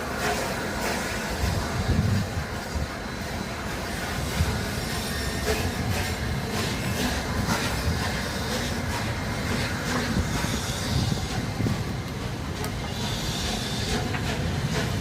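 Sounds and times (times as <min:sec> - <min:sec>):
train rumbling on track: 0:00.0 - 0:15.0
wheels clicking on rails: 0:03.7 - 0:15.0.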